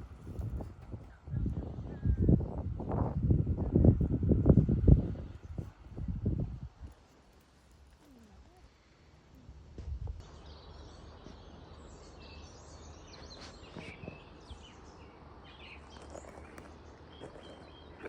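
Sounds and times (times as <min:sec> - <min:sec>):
low outdoor rumble: 0:00.0 - 0:18.0
small birds chirping: 0:10.2 - 0:18.0.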